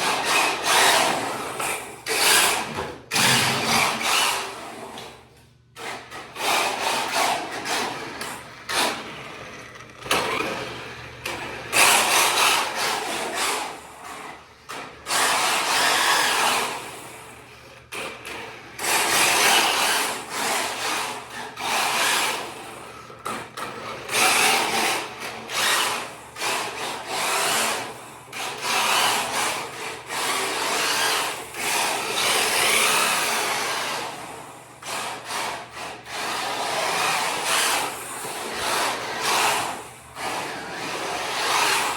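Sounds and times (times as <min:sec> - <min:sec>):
rc car motor whirring: 0:00.0 - 0:05.2, 0:05.8 - 0:41.9.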